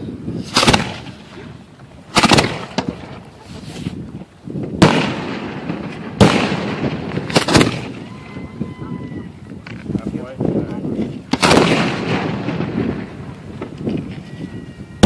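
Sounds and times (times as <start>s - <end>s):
fireworks bangs: 0.3s - 15.0s.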